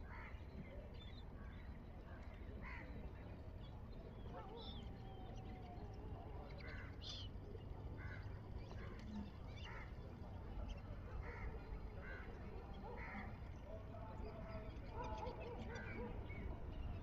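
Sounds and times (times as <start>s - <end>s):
wild birds calling: 10.6s - 16.9s.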